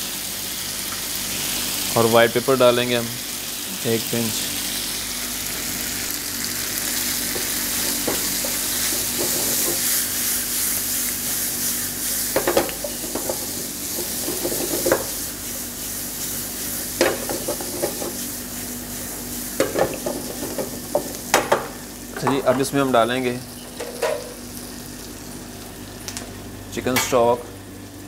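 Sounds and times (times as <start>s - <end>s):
food sizzling in a frying pan: 0.0s - 28.0s
spatula scraping a pan: 7.4s - 21.0s.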